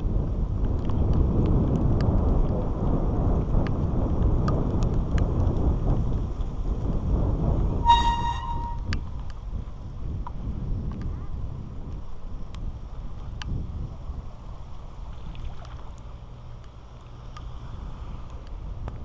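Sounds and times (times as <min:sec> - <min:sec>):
wind buffeting microphone: 0:00.0 - 0:19.0
short steady tone: 0:07.8 - 0:09.3.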